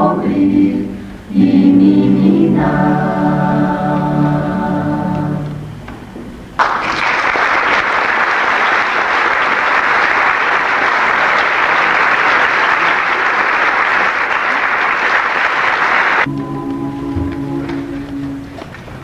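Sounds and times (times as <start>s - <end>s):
audience applauding: 6.6s - 16.4s.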